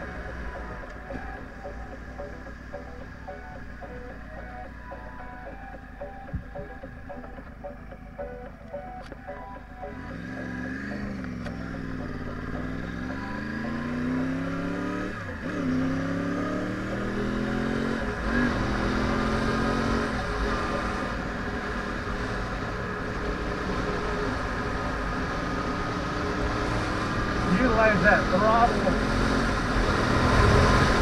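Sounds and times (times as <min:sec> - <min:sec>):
motorcycle engine revving: 0:09.8 - 0:31.0.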